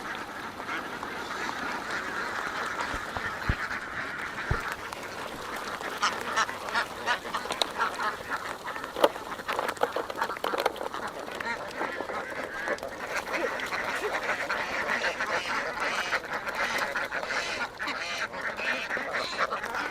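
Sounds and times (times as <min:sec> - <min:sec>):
flock of ducks quacking: 0:00.0 - 0:19.9
louder single duck quacks: 0:02.0 - 0:04.9.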